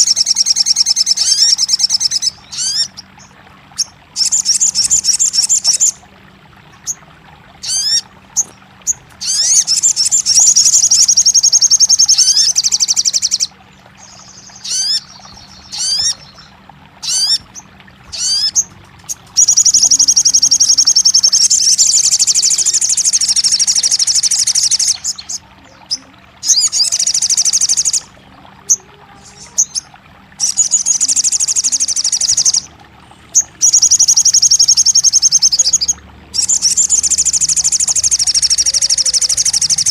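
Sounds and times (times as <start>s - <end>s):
bird trilling and chirping: 0.0s - 6.0s, 7.6s - 32.7s, 33.3s - 39.9s.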